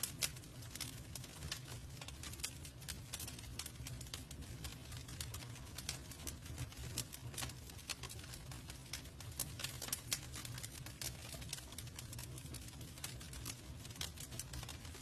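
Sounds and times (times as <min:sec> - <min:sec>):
low rumble of flame: 0:00.0 - 0:15.0
wood fire crackling and popping: 0:00.0 - 0:15.0.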